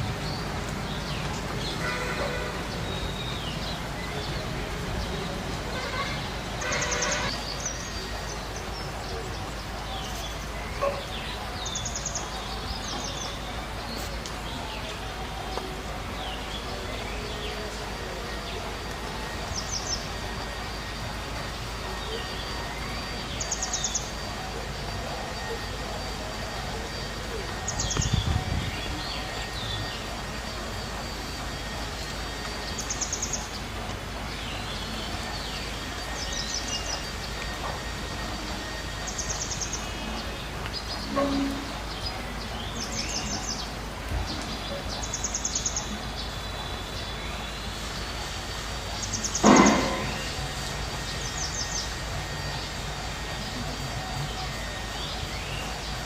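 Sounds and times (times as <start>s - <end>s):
birds chirping: 0.0s - 56.0s
steady background hiss: 0.0s - 56.0s.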